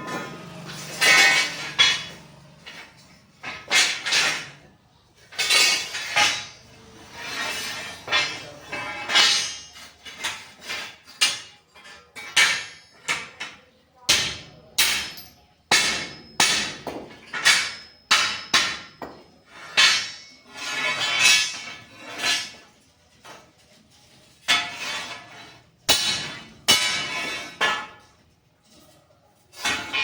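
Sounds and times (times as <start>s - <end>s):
hammer striking steel: 0.0s - 4.7s, 7.5s - 9.9s, 12.2s - 13.4s, 14.1s - 22.6s, 25.9s - 28.1s.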